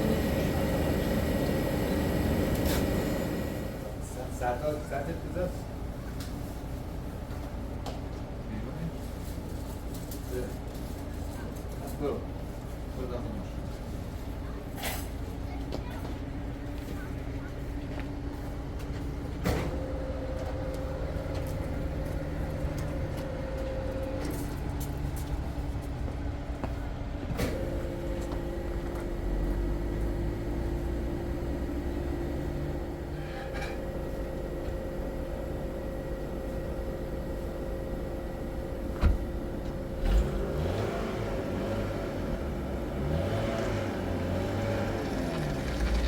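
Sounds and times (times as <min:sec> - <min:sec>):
car engine hum and road rumble: 0:17.4 - 0:46.0.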